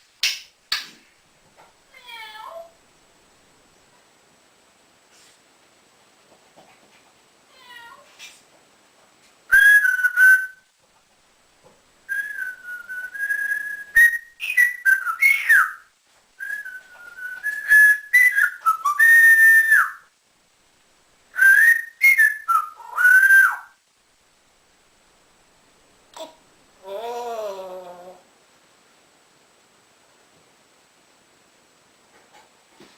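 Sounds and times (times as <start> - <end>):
parrot whistling: 9.5 - 10.6, 12.1 - 15.8, 16.4 - 20.1, 21.4 - 23.8.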